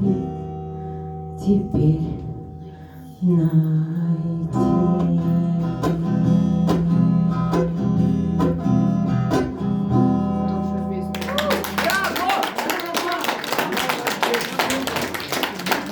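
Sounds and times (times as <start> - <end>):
acoustic guitar strumming: 0.0 - 12.4.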